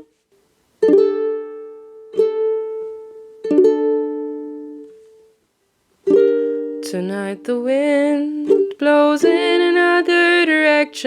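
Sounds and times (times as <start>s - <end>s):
acoustic string instrument strums: 0.0s - 7.6s.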